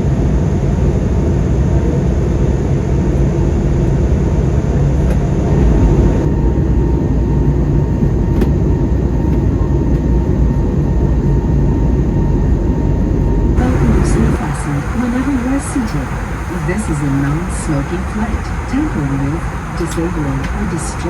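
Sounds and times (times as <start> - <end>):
jet engine cabin rumble: 0.0 - 21.0
faint steady whine: 12.1 - 21.0.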